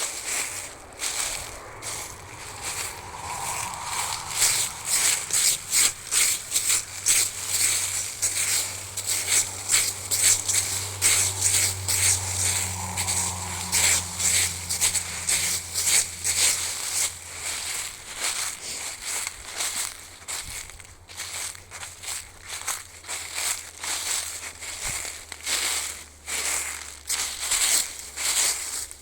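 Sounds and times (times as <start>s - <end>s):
low steady hum: 0.0s - 18.2s
footsteps crunching on forest floor: 0.0s - 29.0s.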